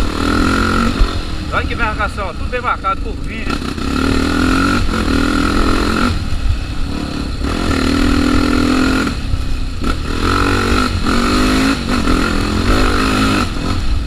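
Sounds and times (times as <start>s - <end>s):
motorcycle engine under throttle: 0.0s - 14.0s
wind rumble on microphone: 0.0s - 14.0s.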